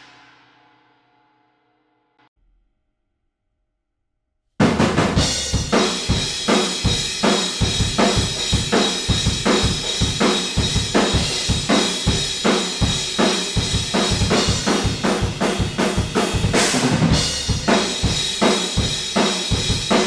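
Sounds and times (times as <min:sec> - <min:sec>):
acoustic drum kit playing: 0:04.6 - 0:20.0.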